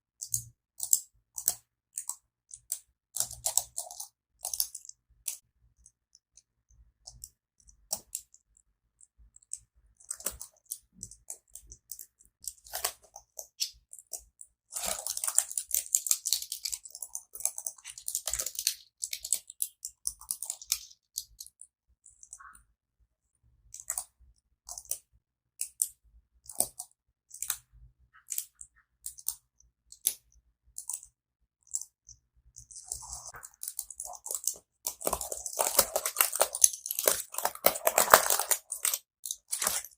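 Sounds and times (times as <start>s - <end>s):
tapping and scratching on keyboard: 0.1s - 22.7s, 23.7s - 39.9s.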